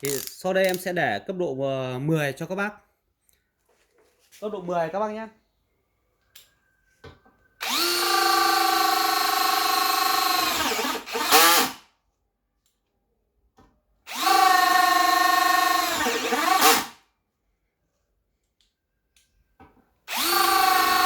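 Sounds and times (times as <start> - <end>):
cordless drill whining: 7.6 - 11.8, 14.1 - 17.0, 20.1 - 21.0.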